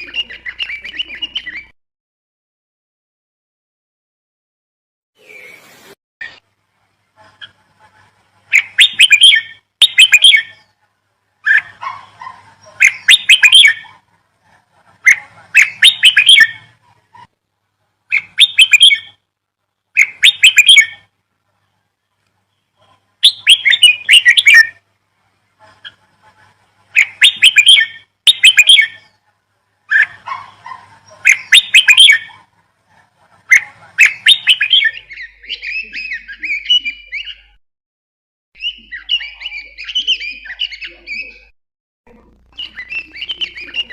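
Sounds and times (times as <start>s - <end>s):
bird chirping and warbling: 0.0s - 1.8s, 5.2s - 6.4s, 7.2s - 10.8s, 11.4s - 17.3s, 18.1s - 19.2s, 20.0s - 21.1s, 22.5s - 24.8s, 25.6s - 37.6s, 38.6s - 41.5s, 42.5s - 43.9s.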